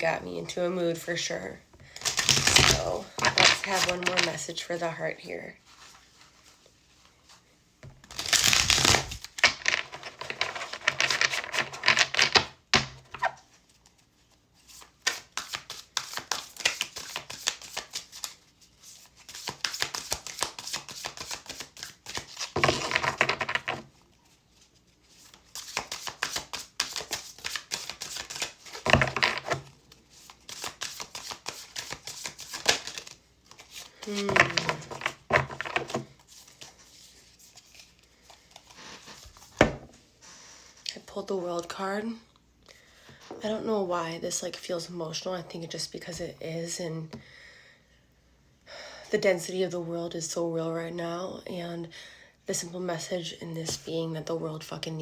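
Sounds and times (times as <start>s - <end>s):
cards being shuffled: 2.0s - 4.4s, 8.0s - 12.5s, 13.1s - 23.9s, 24.6s - 39.8s.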